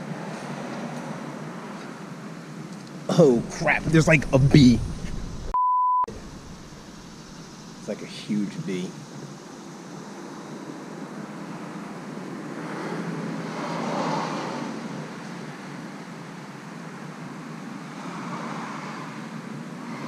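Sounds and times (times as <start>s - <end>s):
steady traffic noise: 0.0s - 20.0s
car passing: 3.1s - 5.5s, 6.1s - 15.8s, 17.7s - 20.0s.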